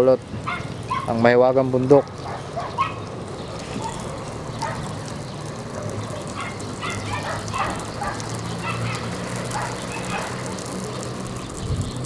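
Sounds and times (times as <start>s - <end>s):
dog barking: 0.5s - 1.2s, 2.1s - 3.0s, 3.8s - 4.9s, 6.4s - 10.7s.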